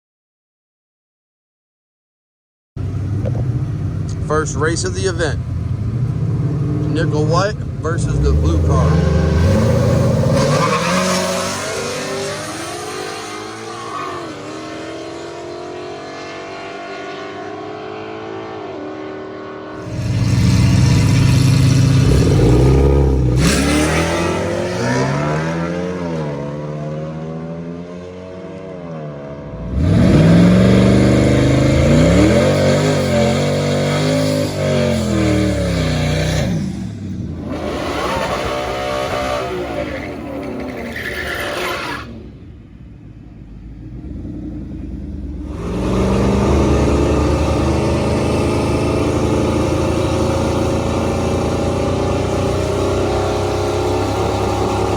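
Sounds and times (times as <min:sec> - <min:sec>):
race car engines revving: 0:02.8 - 0:54.9.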